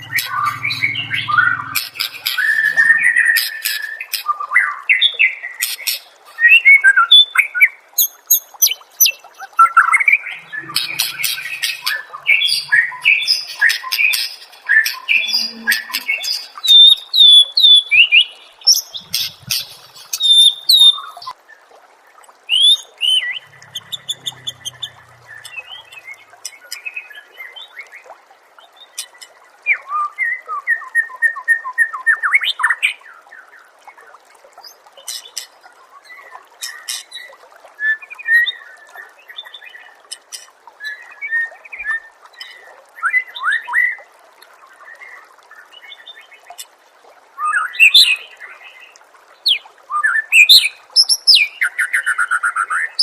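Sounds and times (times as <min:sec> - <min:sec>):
recorded songbird song: 0:00.0 - 0:21.4, 0:22.5 - 0:28.0, 0:47.4 - 0:53.0.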